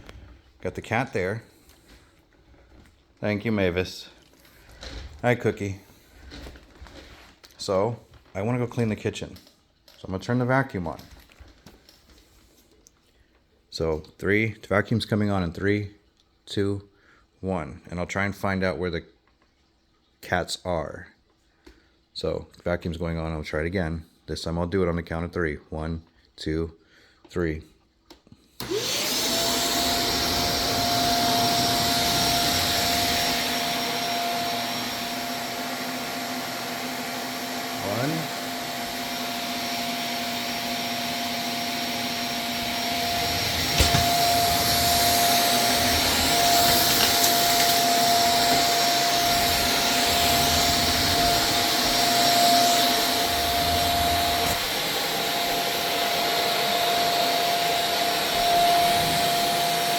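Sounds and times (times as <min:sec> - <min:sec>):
vacuum cleaner running: 0:28.6 - 0:59.9.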